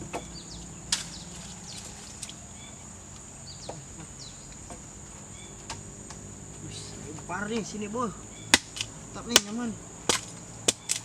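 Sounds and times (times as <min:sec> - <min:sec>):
short chirping calls: 0:00.0 - 0:04.7, 0:06.6 - 0:09.8
high-pitched insect drone: 0:00.0 - 0:11.0
sharp wooden knock: 0:08.5 - 0:11.0.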